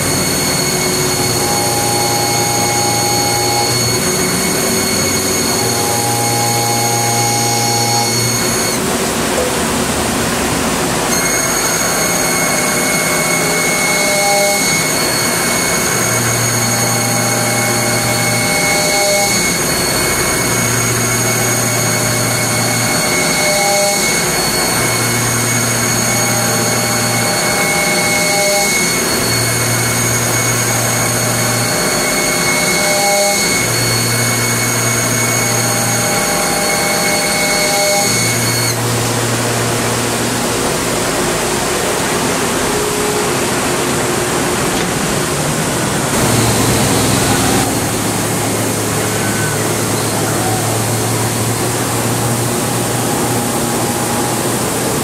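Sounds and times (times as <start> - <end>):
high whine: 0.0 - 55.0
milling machine noise: 0.0 - 55.0
low hum: 46.1 - 55.0.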